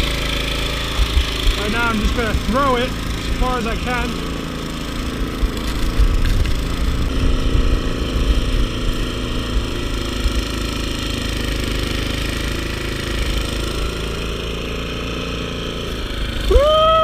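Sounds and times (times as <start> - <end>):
snowblower engine running: 0.0 - 17.0
wind rumbling on microphone: 0.8 - 3.2, 5.1 - 10.6.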